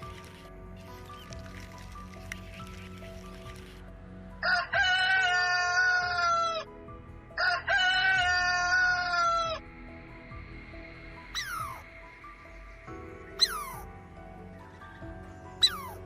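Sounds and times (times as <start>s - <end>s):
soft background music: 0.0s - 16.0s
rooster crowing: 4.4s - 6.7s, 7.4s - 9.6s.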